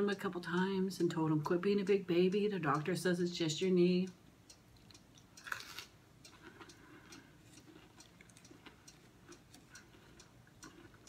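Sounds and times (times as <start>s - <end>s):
chewing crunches and clicks: 4.7s - 11.0s
loud bite: 5.4s - 5.9s.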